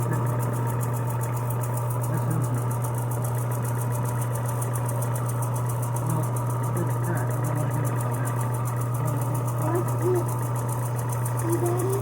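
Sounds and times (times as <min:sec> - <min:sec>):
electric sander motor humming: 0:00.0 - 0:12.0.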